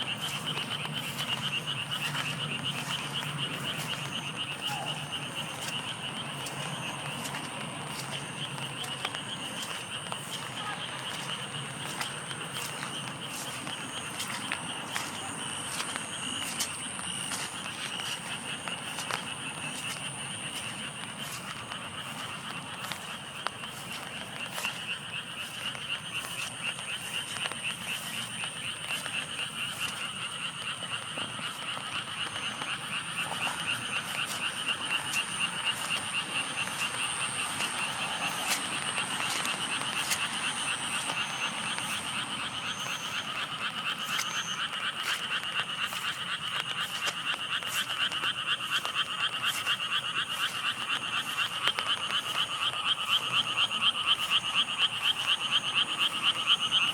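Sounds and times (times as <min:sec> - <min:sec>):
frogs calling in pulsing trill: 0:00.0 - 0:56.9.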